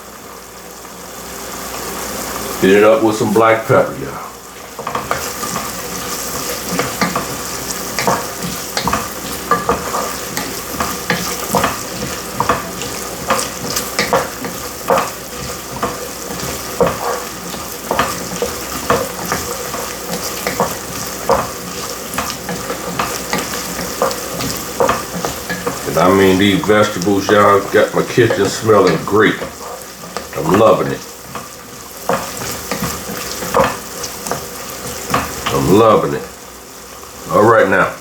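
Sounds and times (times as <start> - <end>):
vegetables sizzling in a pot: 0.0 - 38.0
spoon scraping and knocking pot: 4.8 - 30.4, 31.2 - 35.5.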